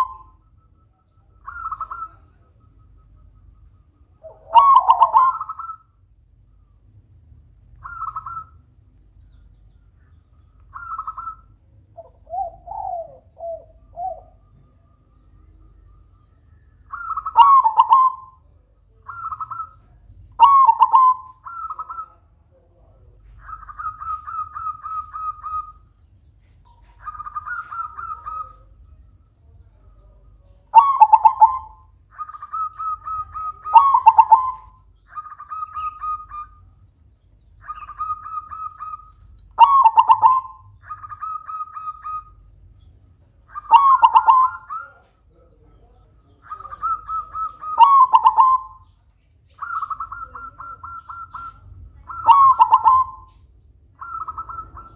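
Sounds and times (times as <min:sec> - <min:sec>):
dove cooing: 0:00.0 - 0:00.5, 0:01.2 - 0:03.4, 0:04.2 - 0:05.9, 0:07.8 - 0:08.6, 0:10.7 - 0:14.7, 0:16.9 - 0:22.2, 0:23.3 - 0:25.9, 0:26.6 - 0:28.8, 0:30.0 - 0:36.7, 0:37.6 - 0:42.4, 0:43.5 - 0:48.9, 0:49.6 - 0:53.4, 0:54.0 - 0:54.9.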